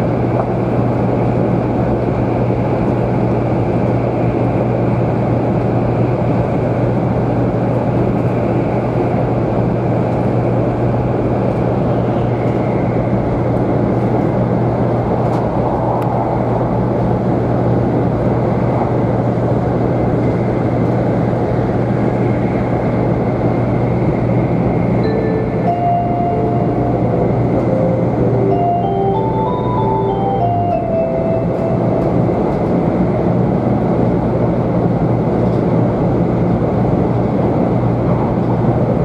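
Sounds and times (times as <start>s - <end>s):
train car running noise: 0.0s - 39.0s.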